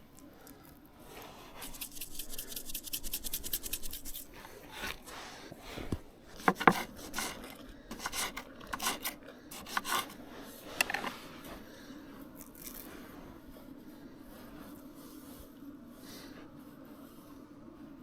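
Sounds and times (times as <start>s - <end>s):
scraping and rubbing handling noises: 1.0s - 11.7s.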